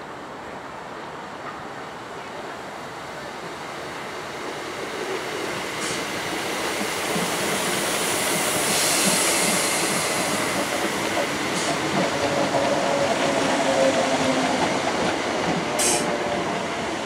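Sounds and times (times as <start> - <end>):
train approaching on track: 0.0 - 17.0
high hiss: 3.6 - 12.0.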